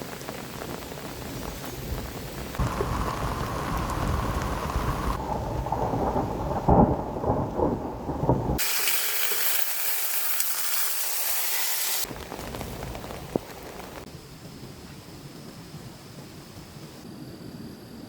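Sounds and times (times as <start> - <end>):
thunder rumbling: 0.0 - 8.8
heavy rain: 0.0 - 16.0.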